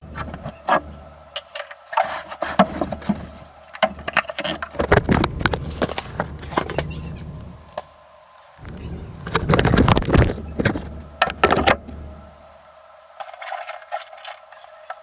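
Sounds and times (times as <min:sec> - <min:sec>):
low rumble: 0:03.0 - 0:12.6.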